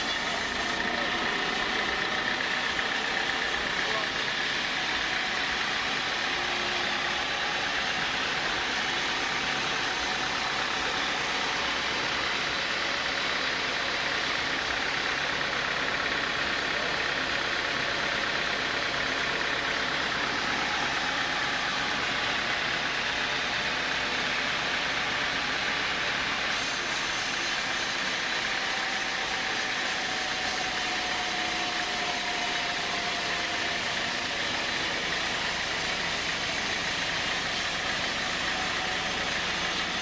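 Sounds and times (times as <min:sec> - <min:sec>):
sawmill saw running: 0:00.0 - 0:40.0.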